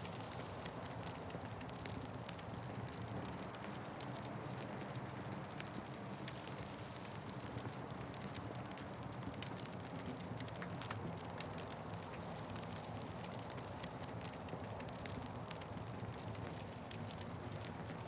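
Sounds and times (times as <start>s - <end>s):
fire crackling: 0.1s - 18.0s.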